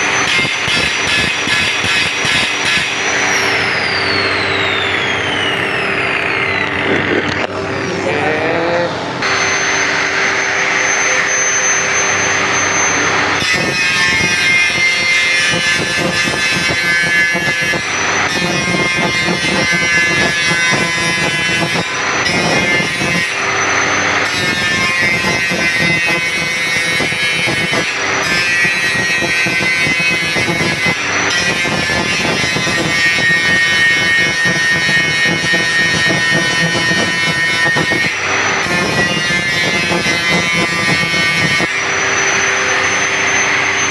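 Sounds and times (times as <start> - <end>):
electric grinder grinding steel: 0.0 - 43.9.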